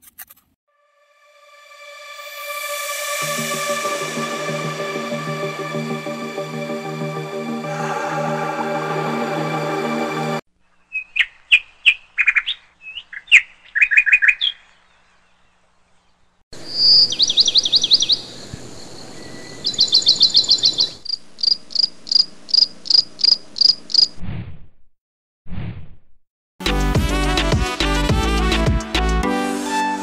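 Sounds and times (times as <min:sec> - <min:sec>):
small birds chirping: 0:10.6 - 0:24.1
fast trilling bird calls: 0:10.7 - 0:15.0, 0:16.6 - 0:18.4, 0:19.3 - 0:24.2.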